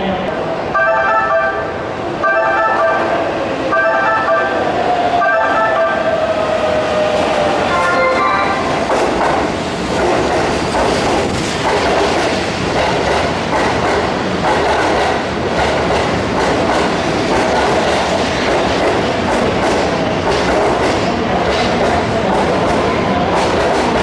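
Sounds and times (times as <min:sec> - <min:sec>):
train wheels clattering over joints: 0:08.9 - 0:24.0.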